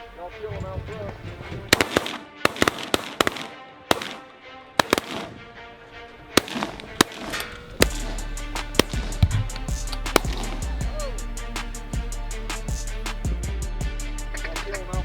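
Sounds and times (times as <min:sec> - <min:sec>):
background music: 0:00.0 - 0:15.0
shotgun blasts: 0:00.7 - 0:11.7.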